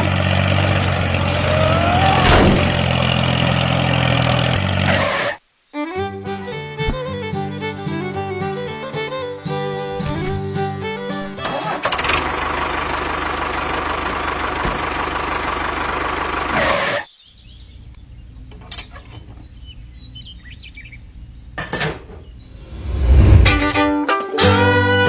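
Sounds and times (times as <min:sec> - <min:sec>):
loud rushing noise: 0:22.5 - 0:24.0.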